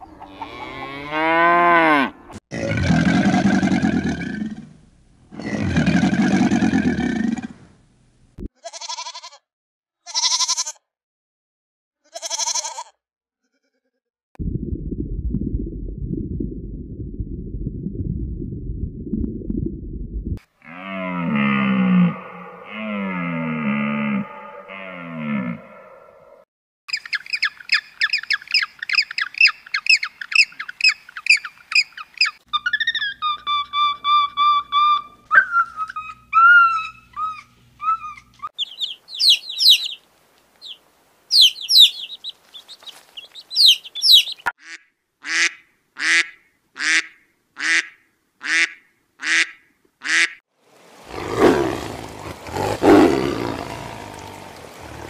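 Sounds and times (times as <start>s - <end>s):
sheep bleating: 8.6s - 9.4s, 10.1s - 10.8s, 12.0s - 14.0s
penguin chick peeping: 26.9s - 40.0s, 40.6s - 44.5s
long deep calls: 51.0s - 55.0s.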